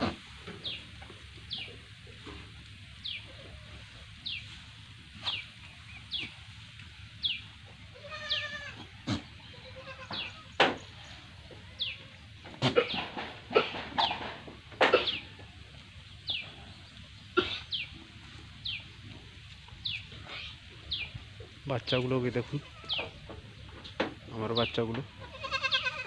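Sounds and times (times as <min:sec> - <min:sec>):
goat bleating: 0:07.7 - 0:10.6, 0:11.5 - 0:13.8, 0:22.2 - 0:23.3, 0:25.0 - 0:26.0.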